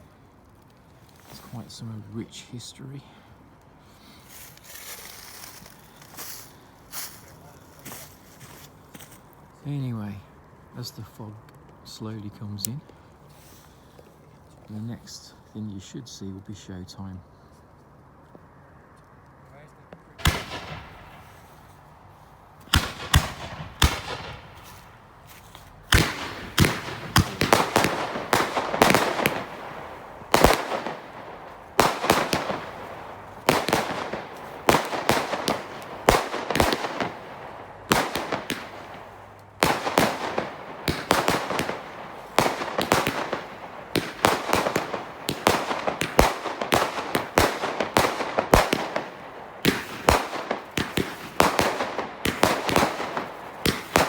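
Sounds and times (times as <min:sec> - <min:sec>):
firework crack: 0:03.8 - 0:09.8, 0:20.2 - 0:54.0
fireworks bangs and crackling: 0:20.2 - 0:54.0.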